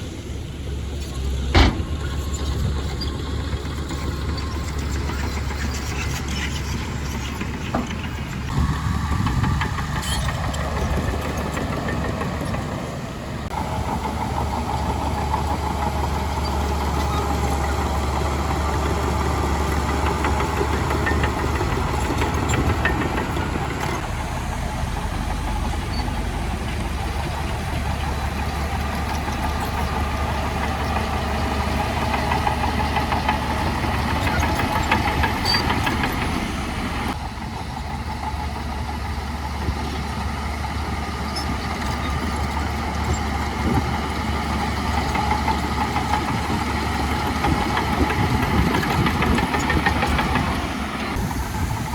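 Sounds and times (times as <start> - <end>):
diesel machinery engine drone: 0.0 - 51.9.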